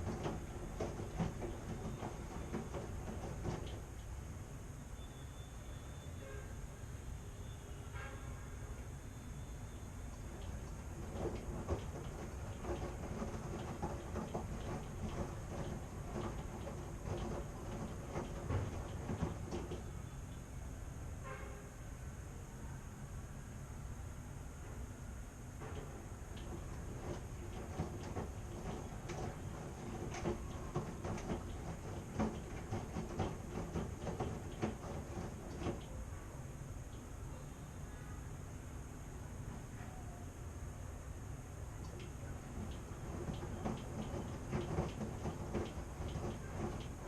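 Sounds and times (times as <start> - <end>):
load clacking in drum: 0.0 - 3.9, 10.4 - 19.9, 25.7 - 36.0, 41.9 - 47.0
washing machine knocking: 0.0 - 4.0, 10.2 - 20.1, 25.7 - 36.0, 41.7 - 47.0
washing machine rumbling: 0.0 - 4.9, 9.7 - 21.0, 25.2 - 37.8, 38.4 - 47.0.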